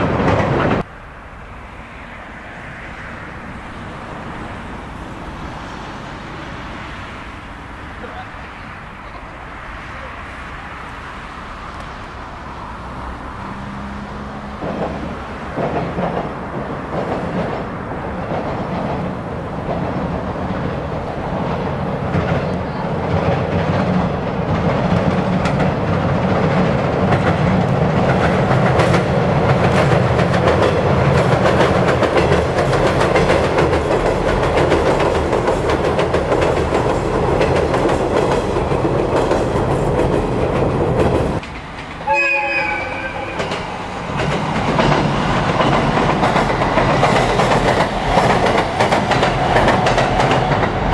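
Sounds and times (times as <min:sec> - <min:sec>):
train rumbling over bridge: 0:00.0 - 0:50.9
wheels clattering over rail joints: 0:13.3 - 0:50.9.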